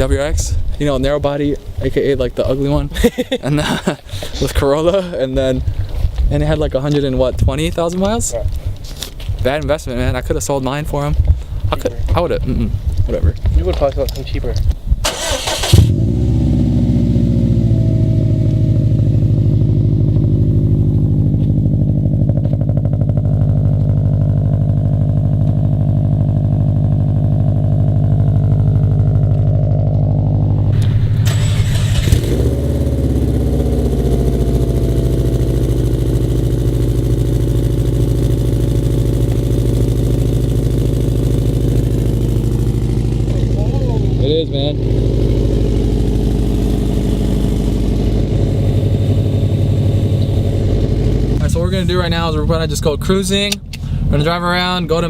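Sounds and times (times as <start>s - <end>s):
car engine idling: 15.1s - 55.0s.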